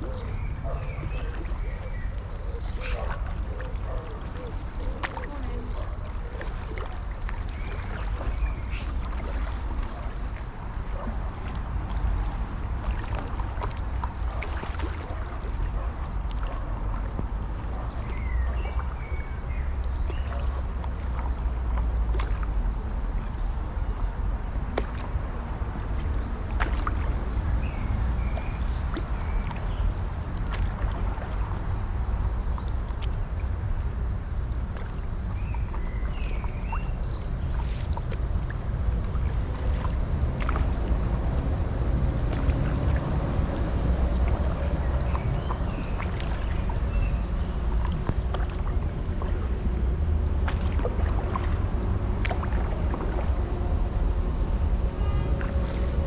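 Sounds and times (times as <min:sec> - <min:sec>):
paddle splashing in water: 0:00.0 - 0:56.0
wind rumble on microphone: 0:00.0 - 0:56.0.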